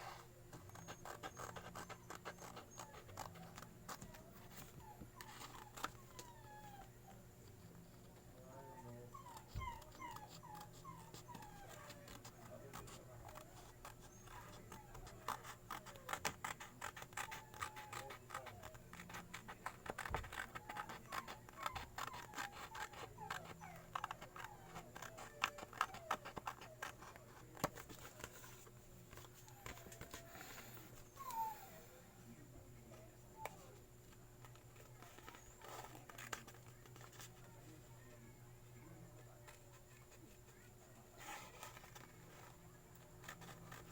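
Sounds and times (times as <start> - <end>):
puppy whimpering: 0.7 - 7.2, 8.4 - 27.5, 29.4 - 32.0.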